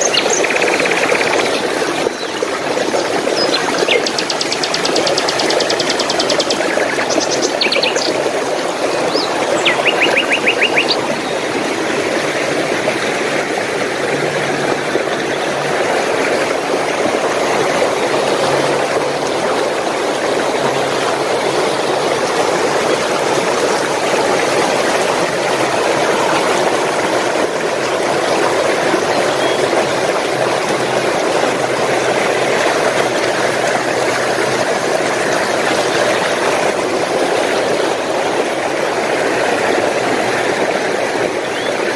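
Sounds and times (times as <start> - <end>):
small birds trilling: 0.0 - 11.6
stream water flowing: 0.0 - 41.9.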